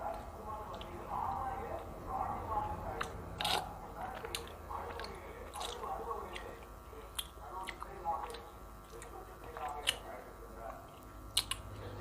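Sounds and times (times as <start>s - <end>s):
person chewing: 0.0s - 1.8s, 2.6s - 10.1s, 10.9s - 12.0s
wet smacking clicks: 10.9s - 11.7s.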